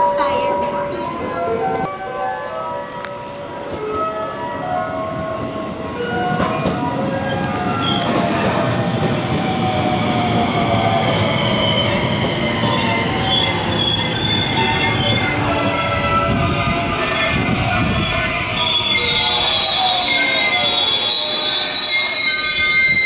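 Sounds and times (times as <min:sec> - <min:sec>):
train rumble: 0:05.1 - 0:19.9
train wheels squealing on rails: 0:05.9 - 0:23.0.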